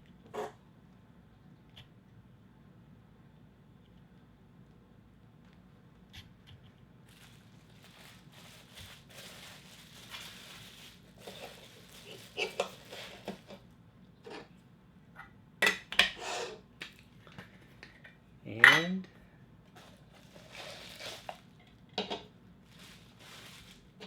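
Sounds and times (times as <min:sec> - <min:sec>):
packaging rustling: 0:07.1 - 0:13.7, 0:19.8 - 0:21.8, 0:22.6 - 0:24.0.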